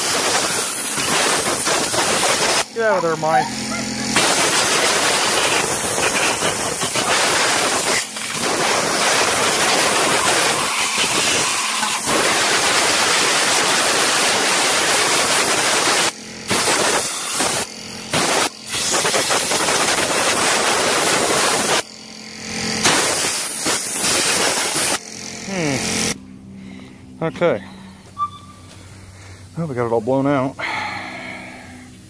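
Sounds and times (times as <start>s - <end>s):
compressed air jet hissing: 0.0s - 21.9s, 22.8s - 26.2s.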